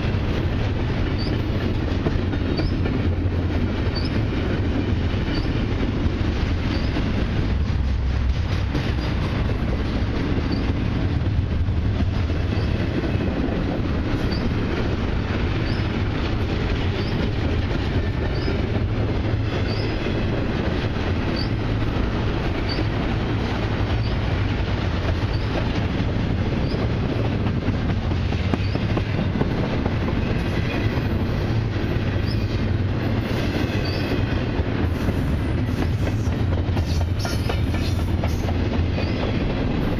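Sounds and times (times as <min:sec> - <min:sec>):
steel wheels rumbling on rail: 0:00.0 - 0:39.9
high-pitched wheel squeaks: 0:01.2 - 0:01.4, 0:05.3 - 0:05.6, 0:06.7 - 0:07.0, 0:14.2 - 0:14.5, 0:15.6 - 0:15.9, 0:17.0 - 0:17.3, 0:25.3 - 0:25.6, 0:32.2 - 0:32.6.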